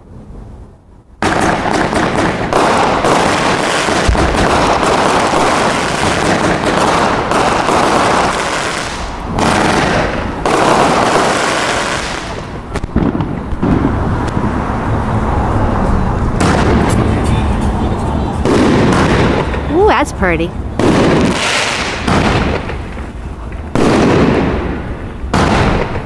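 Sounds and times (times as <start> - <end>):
crackling fireworks: 1.2 - 26.0.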